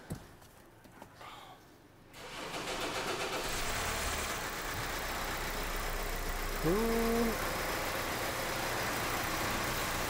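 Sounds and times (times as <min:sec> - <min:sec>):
car engine cranking and starting: 0:02.2 - 0:10.0.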